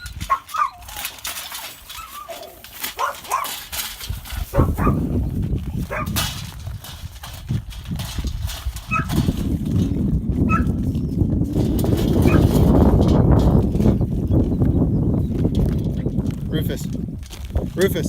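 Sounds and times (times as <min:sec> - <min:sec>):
high squeaks: 0:00.0 - 0:03.6
animal crunchy chewing: 0:00.0 - 0:11.1.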